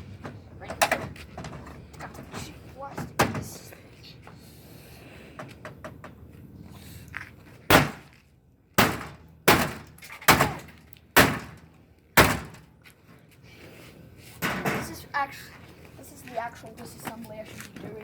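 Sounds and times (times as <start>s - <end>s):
heavy thunks on plastic: 7.7s - 8.1s, 8.8s - 11.6s, 12.2s - 12.7s.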